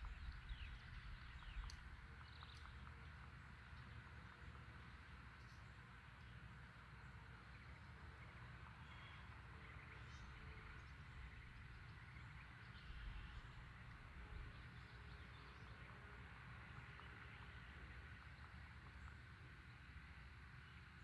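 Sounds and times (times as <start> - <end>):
wind rumble on microphone: 0.0 - 3.1
distant bird chirps: 0.0 - 21.0.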